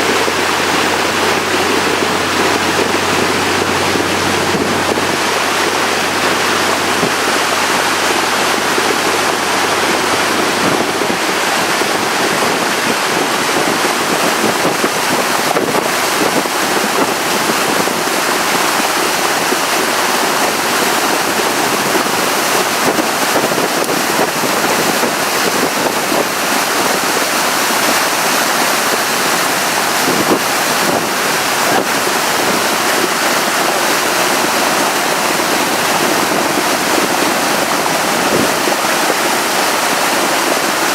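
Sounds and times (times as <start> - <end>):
water rushing past boat hull: 0.0 - 40.9
wind buffeting microphone: 0.0 - 40.9.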